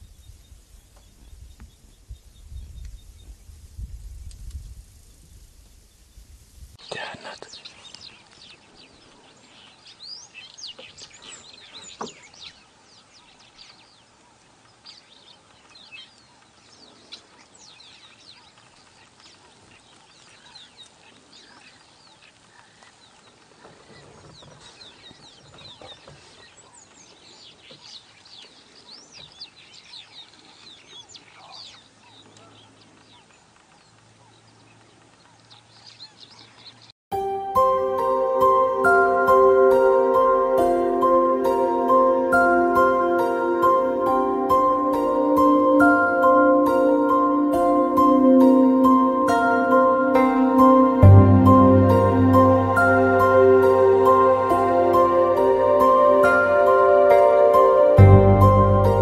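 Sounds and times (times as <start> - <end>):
faint outdoor hiss: 0.0 - 59.0.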